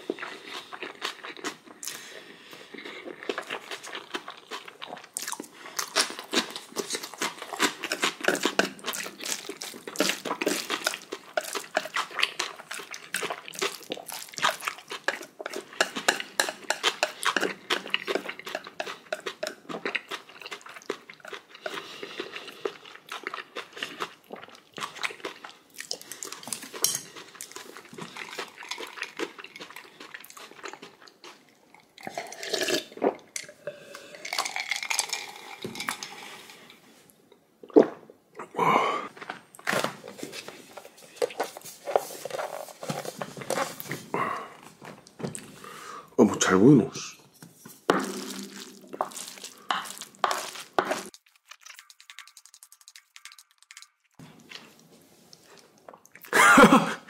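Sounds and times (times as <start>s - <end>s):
wet chewing and mouth smacks: 2.8s - 32.2s, 48.1s - 56.4s.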